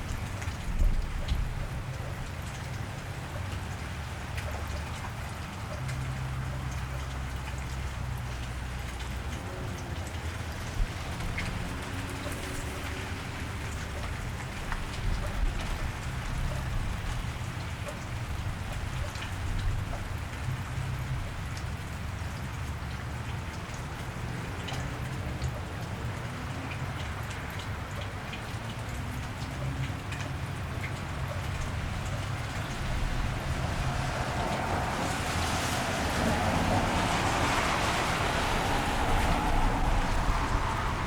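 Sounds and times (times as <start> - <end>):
light traffic rumble: 0.0 - 41.0
rain on wet street: 0.0 - 41.0.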